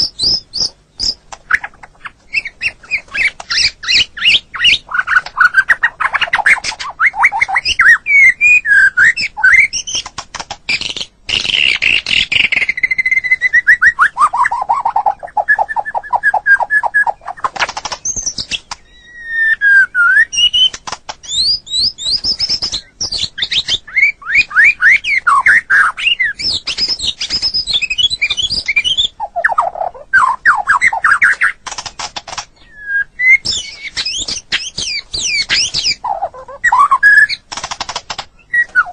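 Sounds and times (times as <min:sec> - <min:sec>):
bird singing trills and whistles: 0:00.0 - 0:38.9.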